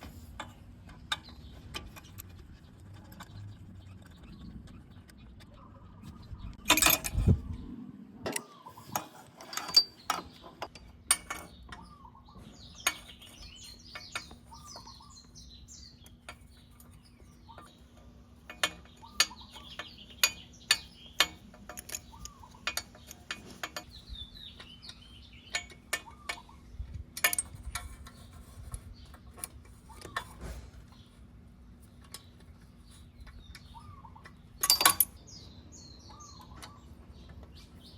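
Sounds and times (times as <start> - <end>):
hand tools clinking on metal: 6.7 - 7.2, 8.3 - 11.9, 17.6 - 26.5, 27.2 - 28.2, 33.6 - 35.4.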